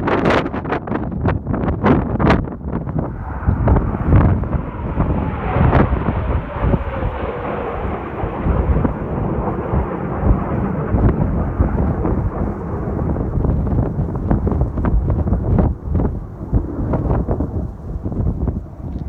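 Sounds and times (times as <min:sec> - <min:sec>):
wind buffeting microphone: 0:00.0 - 0:19.0
low rumble: 0:01.4 - 0:19.0
jet whine passing overhead: 0:02.5 - 0:19.0.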